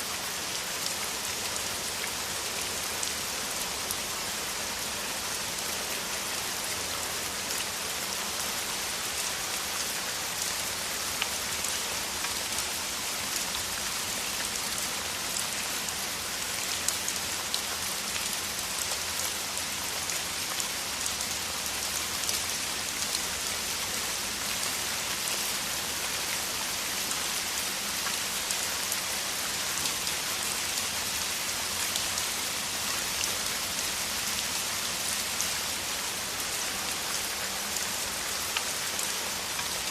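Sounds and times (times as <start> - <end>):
heavy rain downpour: 0.0 - 39.9.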